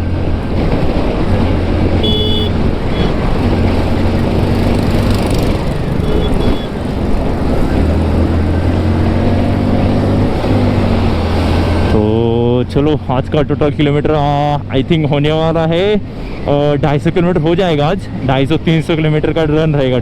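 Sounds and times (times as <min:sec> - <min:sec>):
motorcycle engine running: 0:00.1 - 0:12.1
short high-pitched beeps: 0:02.0 - 0:03.1, 0:06.0 - 0:06.8.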